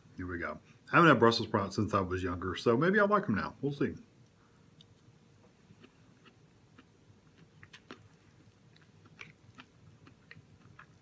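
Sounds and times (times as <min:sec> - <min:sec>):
person chewing: 0:04.7 - 0:11.0.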